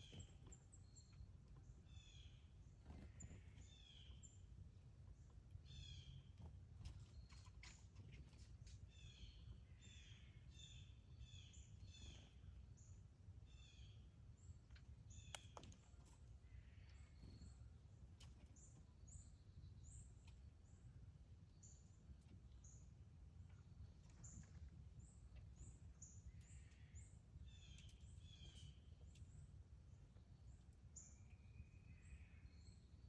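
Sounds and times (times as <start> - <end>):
bird chirping: 0.0 - 4.4, 5.2 - 17.7, 24.0 - 33.0
low steady rumble: 0.0 - 33.0.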